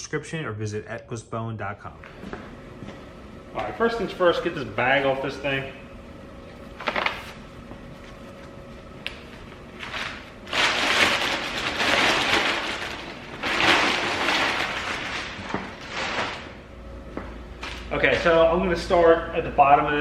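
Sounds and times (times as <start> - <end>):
plastic bag crinkling: 9.2 - 16.6.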